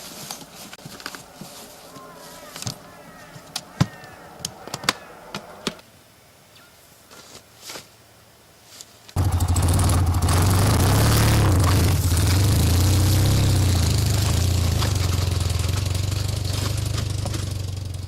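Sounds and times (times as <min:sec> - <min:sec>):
motorcycle engine running: 0:09.2 - 0:18.0.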